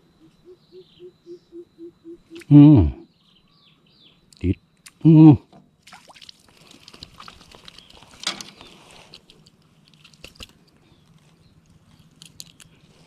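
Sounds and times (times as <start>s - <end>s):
small handling clicks and crackles: 6.6s - 13.0s.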